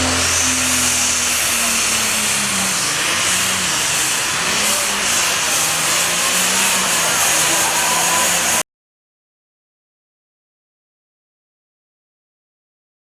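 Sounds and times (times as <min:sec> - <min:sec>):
deeper engine note: 0:00.0 - 0:08.6
tractor engine roaring: 0:00.0 - 0:08.6.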